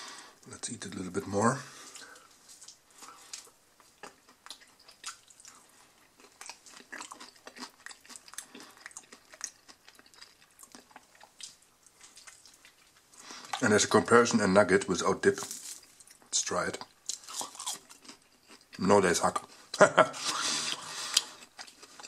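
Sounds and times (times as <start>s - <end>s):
person chewing crunchy food: 1.8s - 13.6s, 15.4s - 18.8s, 20.2s - 22.0s.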